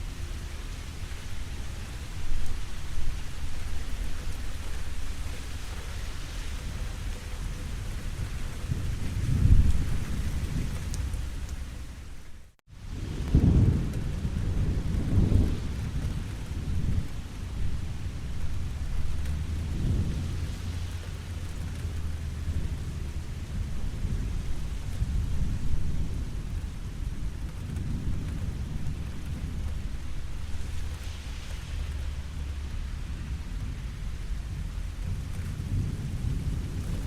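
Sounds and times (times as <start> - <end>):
steady rain: 0.0 - 37.0
rolling thunder: 6.3 - 12.1, 12.8 - 37.0.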